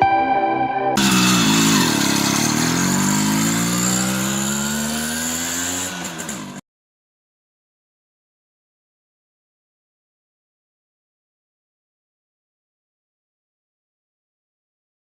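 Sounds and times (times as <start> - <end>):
background music: 0.0 - 2.0
motorcycle engine revving: 1.0 - 6.6.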